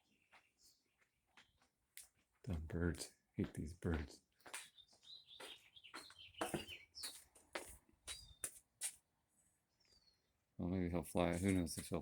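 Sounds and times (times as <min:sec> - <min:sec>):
small bird chirping: 0:04.5 - 0:07.3, 0:08.1 - 0:08.6, 0:09.7 - 0:10.4.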